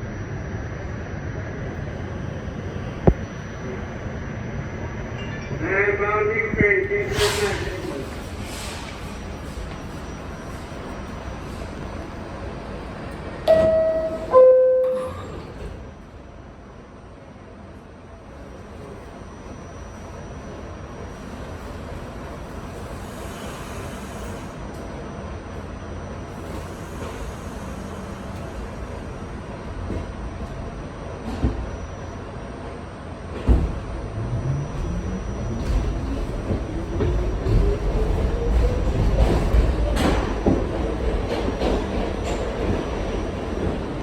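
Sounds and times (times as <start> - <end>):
subway car rumbling: 0.0 - 44.0
train hum: 0.0 - 44.0
two-note falling door chime: 13.5 - 15.4.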